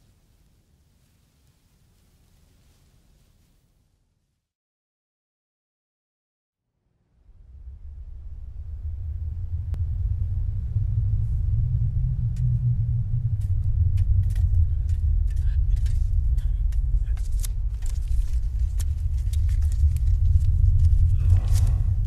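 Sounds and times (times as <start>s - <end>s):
low rumble: 6.9s - 22.0s.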